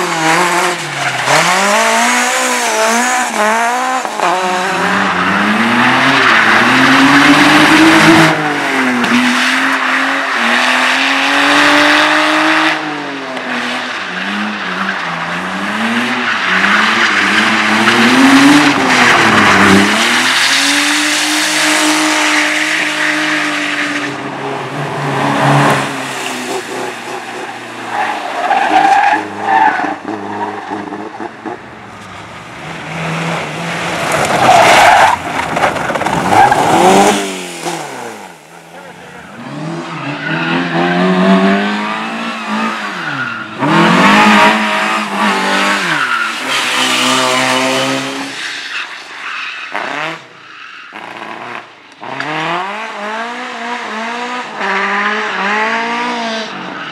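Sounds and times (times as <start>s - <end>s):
race car engine revving: 0.0s - 48.4s
tyres squealing and skidding: 4.1s - 10.8s, 13.8s - 24.3s, 25.3s - 31.4s, 32.8s - 51.3s, 56.5s - 56.9s.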